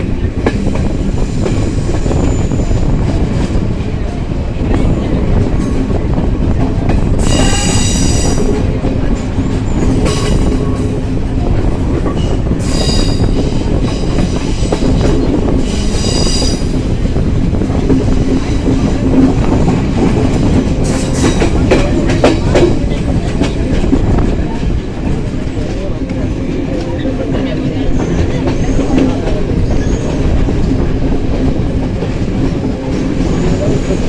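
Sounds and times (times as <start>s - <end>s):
rail-joint clicks: 0.0s - 34.0s
train rumbling on track: 0.0s - 34.0s
train wheels squealing: 7.2s - 8.6s, 12.2s - 14.8s, 15.6s - 16.8s, 28.0s - 30.6s.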